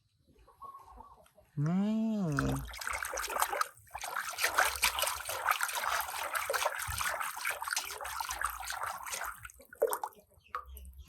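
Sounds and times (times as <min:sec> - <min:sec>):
water trickling and splashing: 0:02.3 - 0:11.0.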